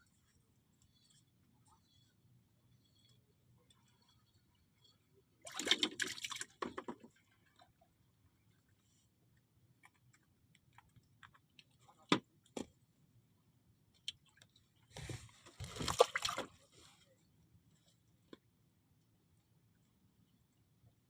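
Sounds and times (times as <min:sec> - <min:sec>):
water splashing and sloshing: 0:02.9 - 0:10.3, 0:14.1 - 0:17.0.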